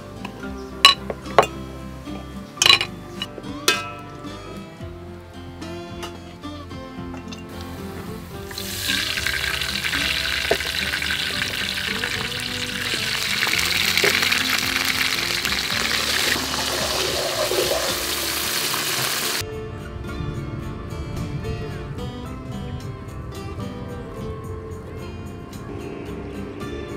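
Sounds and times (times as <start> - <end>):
background music: 0.0 - 26.9
garlic sizzling in hot oil: 7.5 - 19.4.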